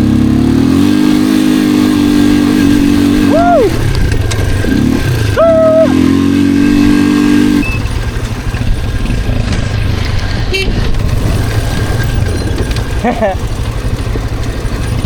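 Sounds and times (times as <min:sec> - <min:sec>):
atv engine running: 0:00.0 - 0:15.0
person shouting: 0:03.2 - 0:03.8, 0:05.3 - 0:06.1.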